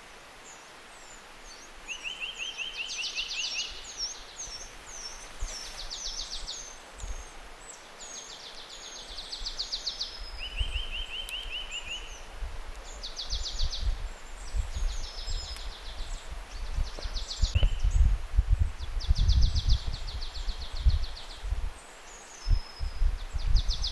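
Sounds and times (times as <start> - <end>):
songbirds trilling and whistling: 0.0 - 18.1, 18.8 - 23.9
wind rumble on microphone: 9.0 - 23.9.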